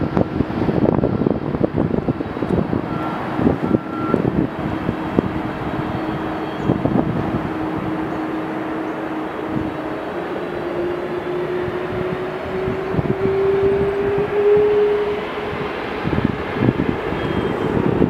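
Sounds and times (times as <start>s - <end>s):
jet engines roaring: 0.0s - 18.0s
rising whine: 0.0s - 18.0s.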